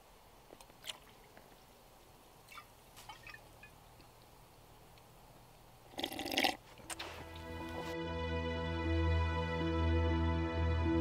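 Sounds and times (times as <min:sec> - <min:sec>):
short rustle: 0:06.6 - 0:08.0.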